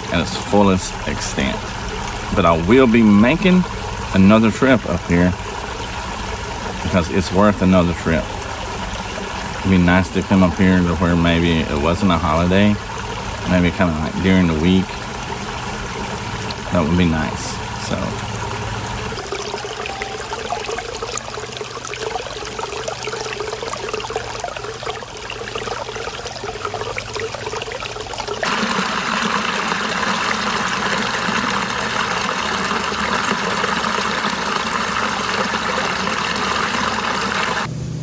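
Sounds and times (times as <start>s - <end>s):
waterfall rushing over rocks: 28.4s - 37.7s.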